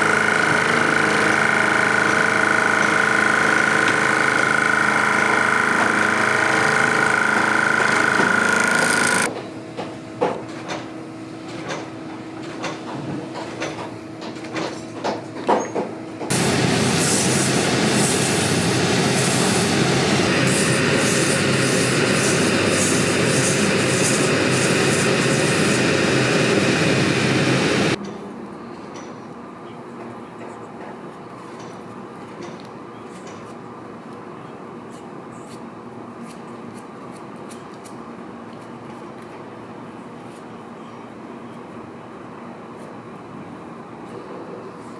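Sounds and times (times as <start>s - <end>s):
machine whining: 0.0s - 9.3s, 16.3s - 28.0s
machine rushing noise: 16.3s - 28.0s.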